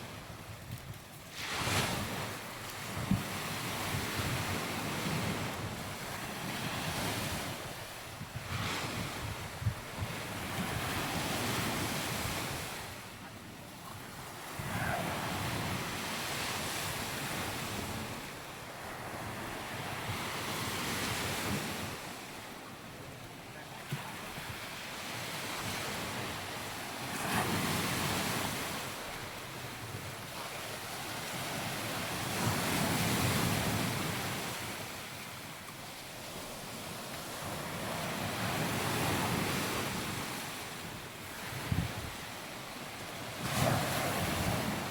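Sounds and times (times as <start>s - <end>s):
wind buffeting microphone: 8.2s - 12.8s.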